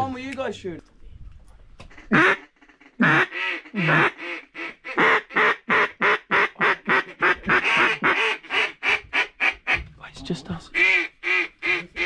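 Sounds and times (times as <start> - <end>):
duck call quacks: 1.9 - 9.8, 10.8 - 12.0.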